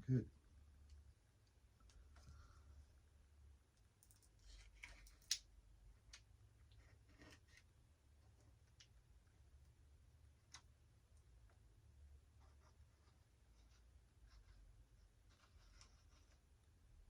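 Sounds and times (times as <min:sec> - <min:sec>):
small parts clicking and rustling: 0:03.7 - 0:06.3.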